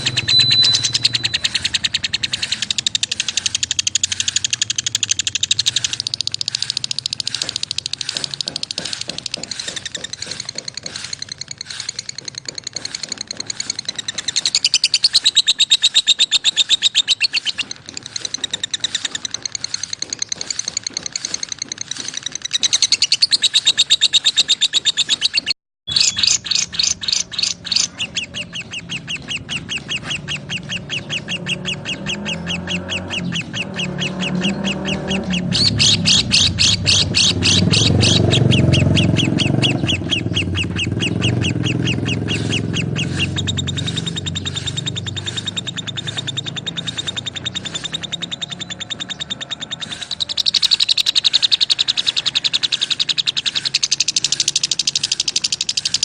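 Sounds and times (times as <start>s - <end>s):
lovebirds chirping: 0.0s - 56.0s.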